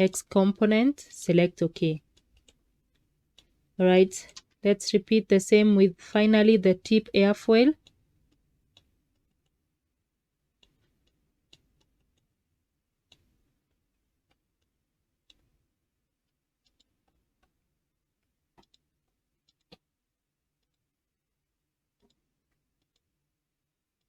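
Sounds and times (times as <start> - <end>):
computer mouse clicks: 2.0 - 3.6, 4.2 - 4.6, 7.8 - 9.6, 10.6 - 12.3, 13.0 - 15.5, 16.6 - 17.6, 18.2 - 19.9, 20.6 - 20.8, 22.0 - 23.1.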